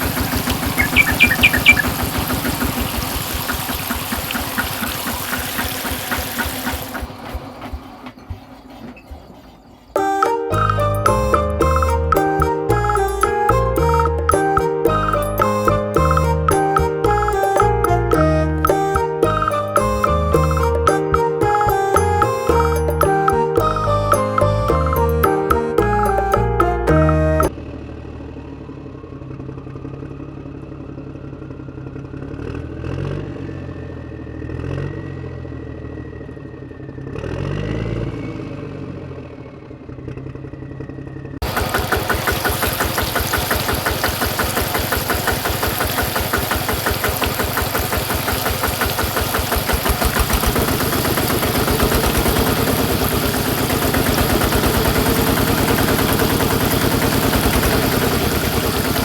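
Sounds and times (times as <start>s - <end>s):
toy diesel engine running: 0.0s - 11.3s, 41.4s - 59.0s.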